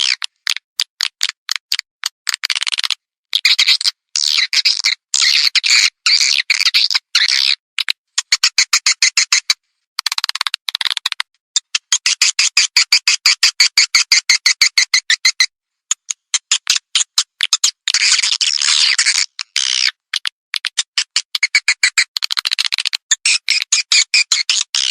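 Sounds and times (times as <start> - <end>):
swiftlet chirping clicks: 7.8 - 12.4, 15.9 - 24.9.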